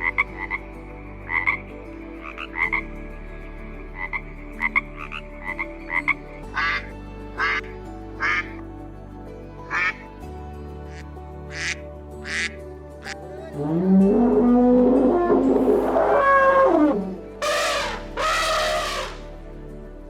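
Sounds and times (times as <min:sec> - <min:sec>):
frogs croaking: 0:00.0 - 0:08.6, 0:09.6 - 0:10.0, 0:10.8 - 0:19.3
soft music pad: 0:00.0 - 0:20.0.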